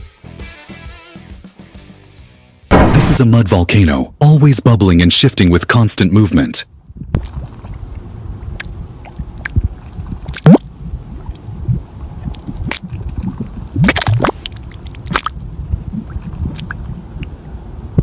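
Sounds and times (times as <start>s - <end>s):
low churning sound: 7.0s - 18.0s
mud bubbling and plopping: 7.0s - 18.0s.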